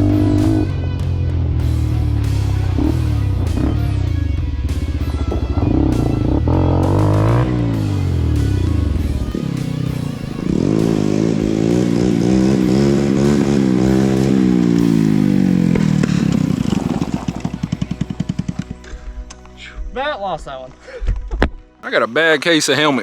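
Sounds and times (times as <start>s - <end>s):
mini bike engine revving: 5.0s - 18.7s.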